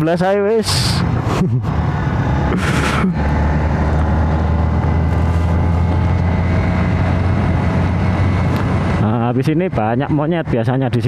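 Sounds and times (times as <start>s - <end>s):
motorcycle engine running: 1.9s - 10.3s.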